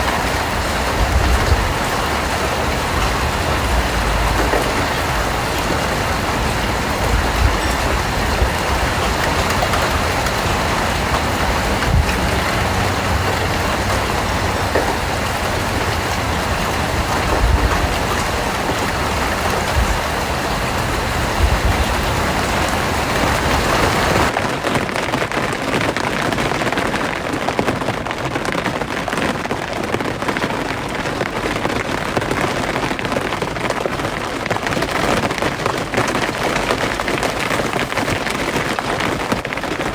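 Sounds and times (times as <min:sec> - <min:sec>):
heavy raindrop thumps: 0:00.0 - 0:25.4
steady rain falling: 0:00.0 - 0:39.9.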